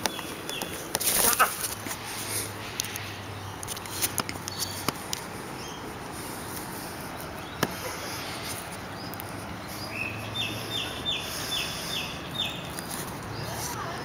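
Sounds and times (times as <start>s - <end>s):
bird chirping: 5.5s - 6.0s, 7.2s - 14.0s.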